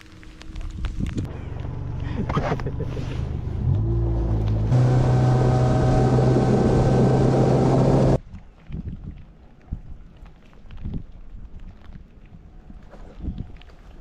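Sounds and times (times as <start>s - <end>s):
boat motor humming: 1.3s - 8.2s.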